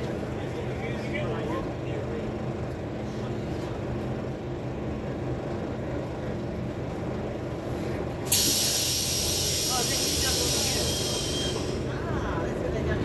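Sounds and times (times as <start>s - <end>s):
bus engine humming: 0.0s - 13.0s
loud steady hiss: 8.3s - 11.9s.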